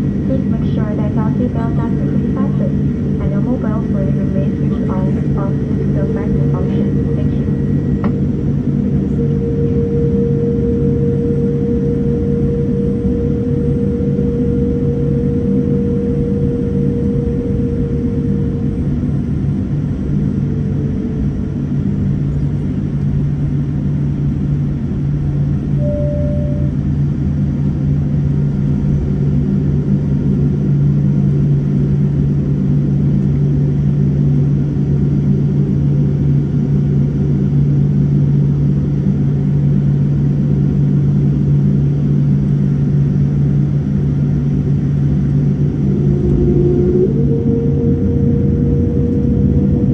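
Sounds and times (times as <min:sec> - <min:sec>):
jet engine hum inside cabin: 0:00.0 - 0:49.9
brief steady tone: 0:09.1 - 0:19.2, 0:25.8 - 0:27.2, 0:45.0 - 0:49.7.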